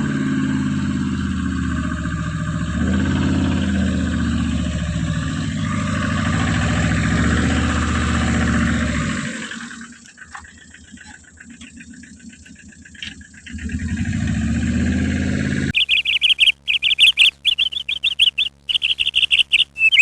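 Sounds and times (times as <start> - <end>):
engine-like drone: 0.0 - 20.0
high bird-like chirping: 15.8 - 20.0.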